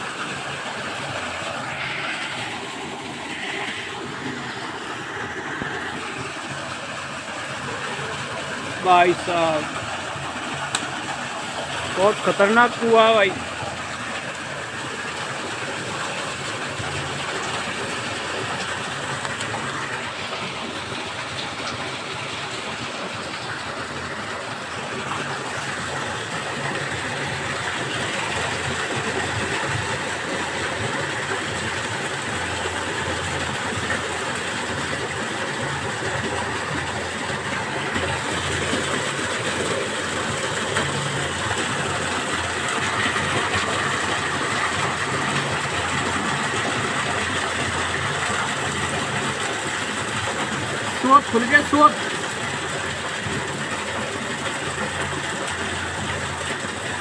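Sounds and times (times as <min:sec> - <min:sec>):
water gushing into a well: 0:00.0 - 0:57.0.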